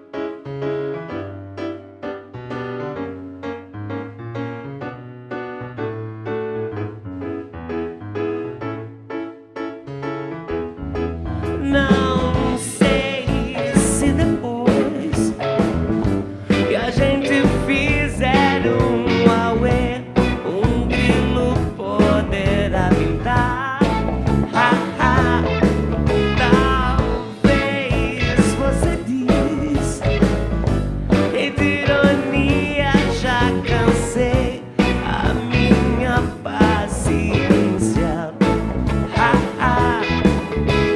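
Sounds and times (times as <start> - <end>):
psychedelic rock song: 11.3 - 40.9.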